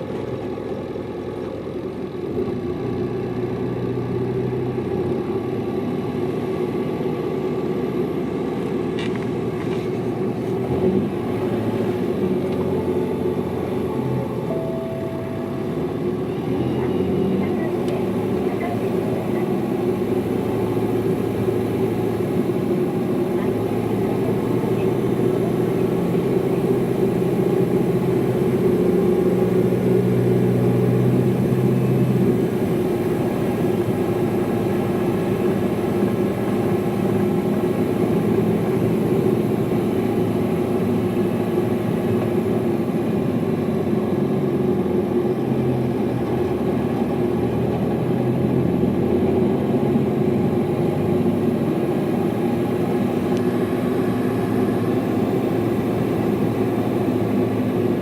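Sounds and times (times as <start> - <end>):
bus diesel engine running: 0.0 - 58.0
road noise: 0.0 - 58.0.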